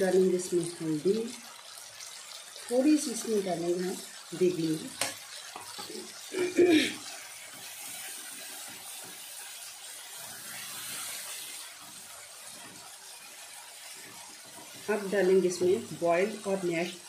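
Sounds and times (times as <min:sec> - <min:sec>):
sauce sizzling in hot oil: 0:00.0 - 0:17.0
spatula scraping and stirring: 0:07.1 - 0:17.0.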